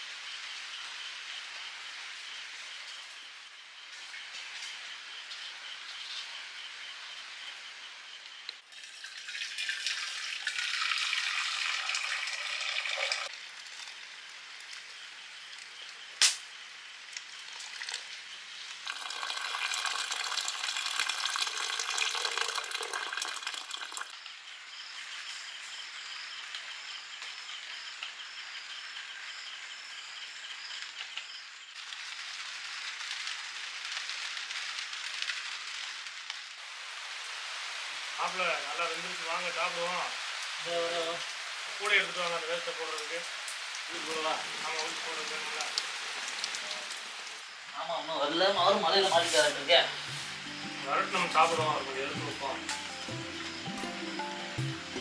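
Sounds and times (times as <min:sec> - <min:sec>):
rain falling: 0:00.0 - 0:24.2, 0:31.7 - 0:55.0
sharp click: 0:16.2 - 0:16.5.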